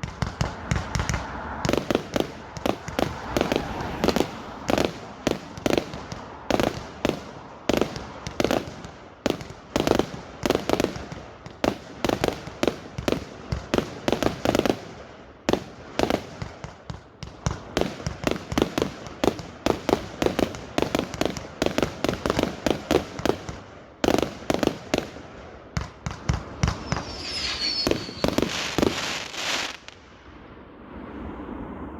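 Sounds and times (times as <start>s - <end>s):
fireworks bangs and crackles: 0.0s - 30.6s
firework whistling: 0.1s - 8.6s, 26.2s - 31.9s.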